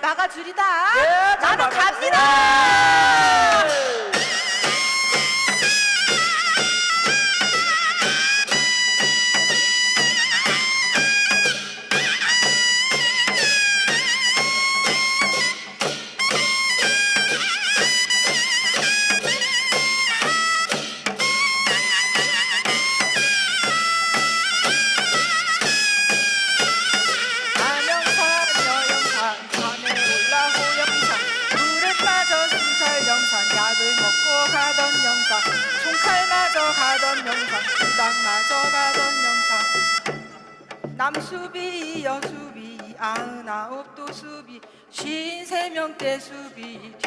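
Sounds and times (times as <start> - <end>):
steady drum beat: 2.4 - 36.6
shrill double-reed wind melody: 2.5 - 40.8.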